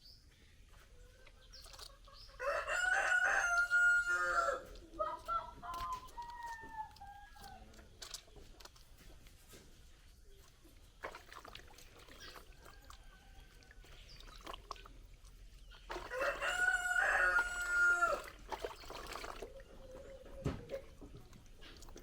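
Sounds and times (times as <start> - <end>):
rooster crowing: 2.4 - 4.7, 16.1 - 18.3.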